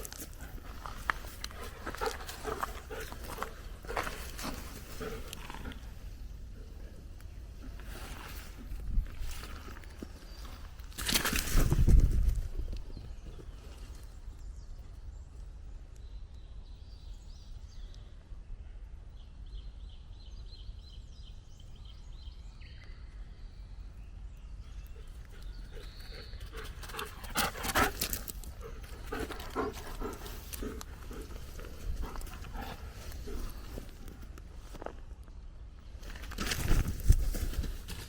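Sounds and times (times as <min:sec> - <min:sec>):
footsteps on forest floor: 0:00.0 - 0:06.1, 0:07.6 - 0:12.2, 0:26.6 - 0:35.1
forest ambience: 0:00.0 - 0:38.0.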